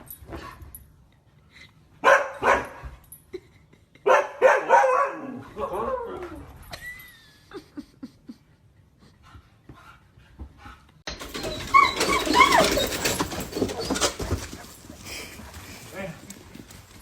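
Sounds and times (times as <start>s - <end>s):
dog whining: 11.1s - 16.0s.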